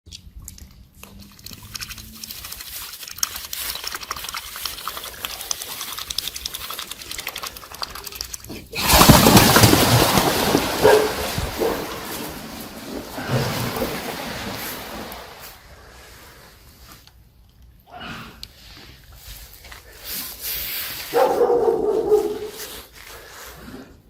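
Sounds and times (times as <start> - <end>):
swans splashing and flapping: 1.2 - 16.5
dog barking: 10.8 - 12.3, 21.1 - 22.6.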